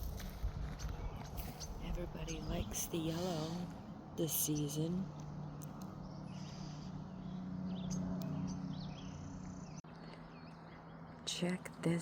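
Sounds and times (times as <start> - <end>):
small birds chirping: 0.5 - 12.0.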